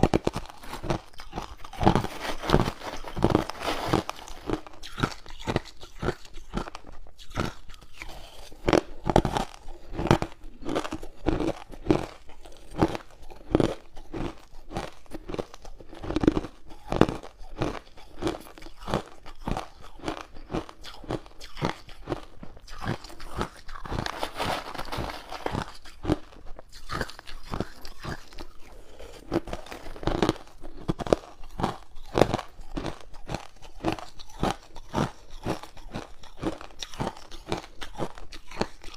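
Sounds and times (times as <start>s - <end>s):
person chewing ice cubes: 0.0s - 38.9s.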